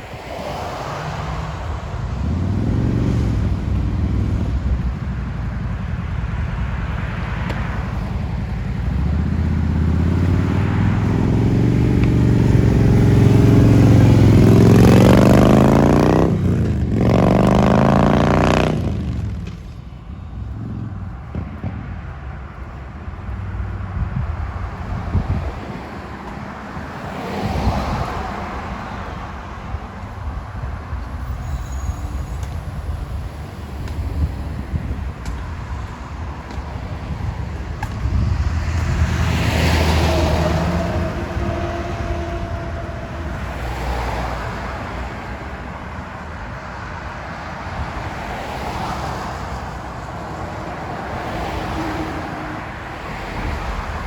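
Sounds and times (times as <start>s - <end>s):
vehicle engine accelerating past: 8.8s - 19.5s, 37.1s - 45.2s.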